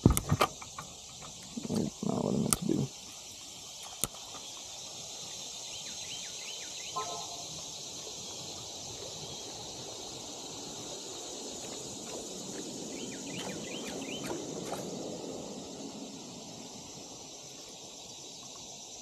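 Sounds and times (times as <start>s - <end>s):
high insect drone: 0.0s - 19.0s
bird chirps: 5.6s - 8.6s, 12.9s - 14.5s.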